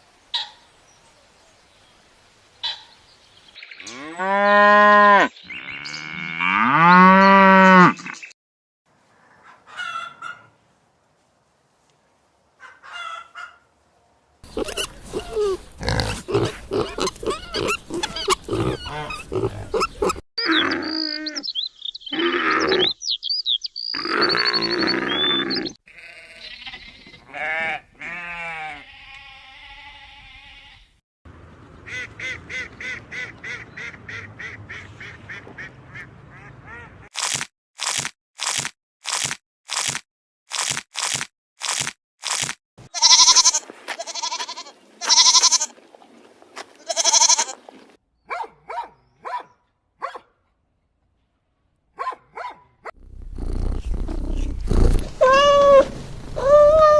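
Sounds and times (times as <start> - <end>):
pig grunting: 14.4 - 21.0, 53.0 - 55.9.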